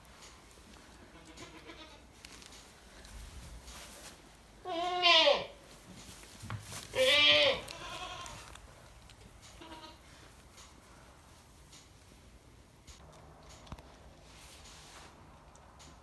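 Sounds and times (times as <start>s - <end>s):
goat bleating: 1.1s - 2.0s, 4.6s - 5.5s, 6.9s - 8.5s, 9.6s - 10.0s.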